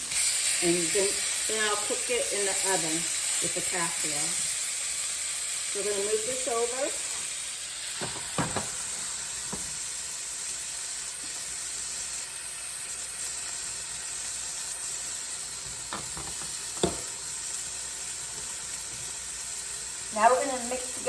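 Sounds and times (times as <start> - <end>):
chicken sizzling in oil: 0.0 - 21.0
utensil knocking against pan: 8.0 - 8.7, 15.9 - 17.1.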